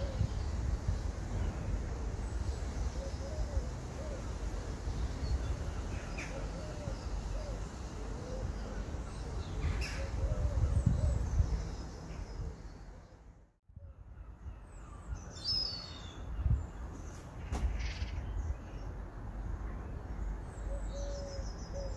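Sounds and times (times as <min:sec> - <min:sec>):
birds calling: 0:00.0 - 0:13.4.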